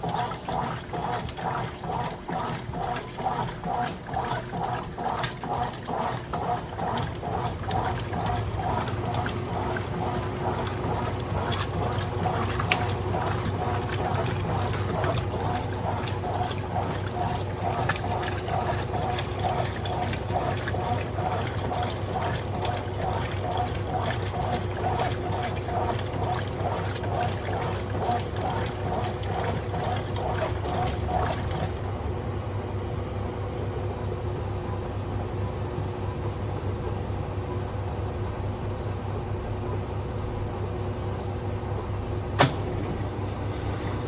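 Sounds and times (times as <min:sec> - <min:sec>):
water sloshing: 0:00.0 - 0:32.0
washing machine hum: 0:00.0 - 0:44.0.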